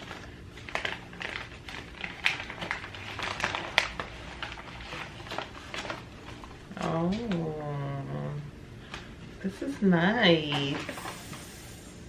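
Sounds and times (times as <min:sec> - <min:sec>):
packaging rustling and crinkling: 0:00.0 - 0:07.5, 0:10.4 - 0:11.6.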